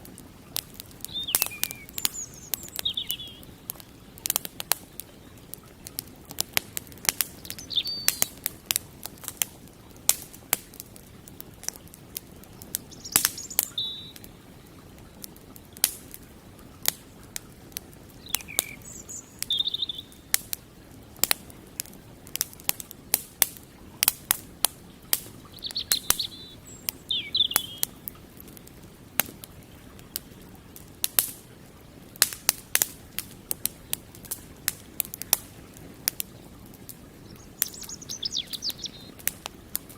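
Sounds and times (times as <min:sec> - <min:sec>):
campfire crackling and popping: 0:00.0 - 0:39.9
birds chirping: 0:00.5 - 0:08.5, 0:11.7 - 0:15.8, 0:17.4 - 0:20.4, 0:24.8 - 0:28.8, 0:36.2 - 0:39.9.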